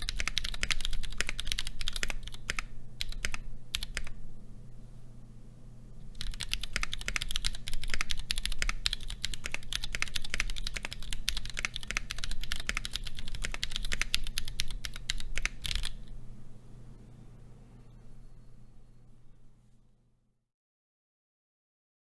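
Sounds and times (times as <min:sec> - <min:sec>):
mechanical keyboard typing: 0:00.0 - 0:04.2, 0:06.1 - 0:16.1
faint low hum: 0:00.0 - 0:20.5.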